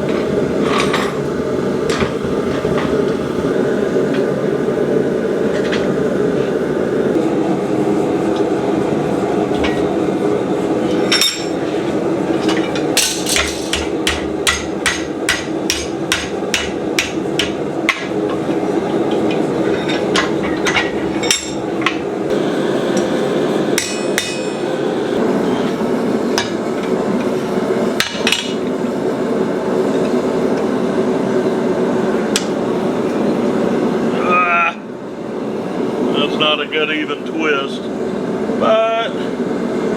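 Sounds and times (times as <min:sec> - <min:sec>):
hammer striking steel: 0:12.5 - 0:18.2, 0:23.8 - 0:24.6.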